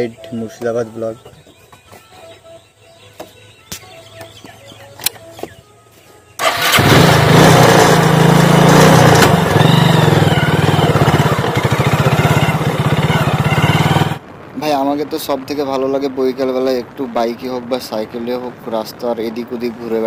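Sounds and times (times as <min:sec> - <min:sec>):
motorcycle engine droning: 0:06.4 - 0:14.3.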